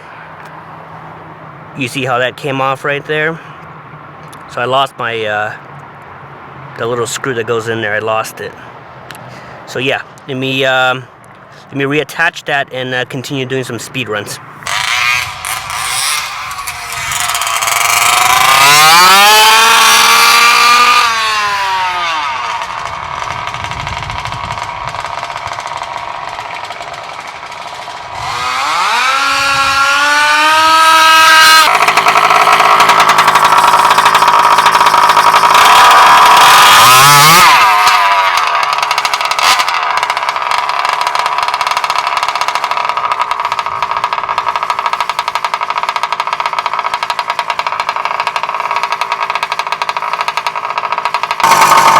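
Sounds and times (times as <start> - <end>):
two-stroke engine revving: 14.5 - 51.9.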